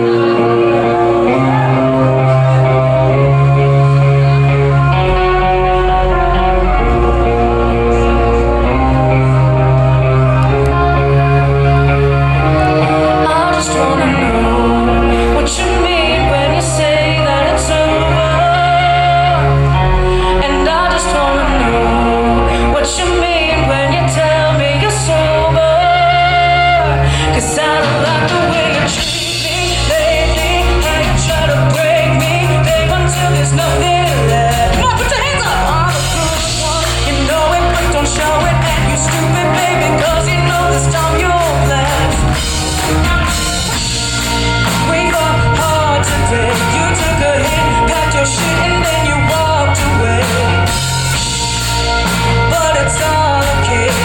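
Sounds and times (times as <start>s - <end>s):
bass guitar: 0.0s - 54.0s
drums: 0.0s - 54.0s
lead vocalist singing: 0.0s - 54.0s
drum beat: 34.6s - 47.7s.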